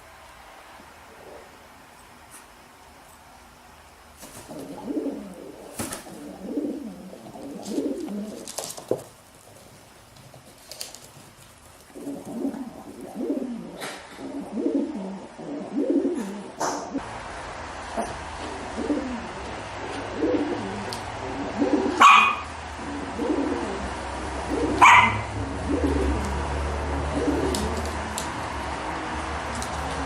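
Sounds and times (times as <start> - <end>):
bird cooing: 4.5 - 8.6, 11.9 - 16.6, 18.6 - 26.4, 27.0 - 28.0.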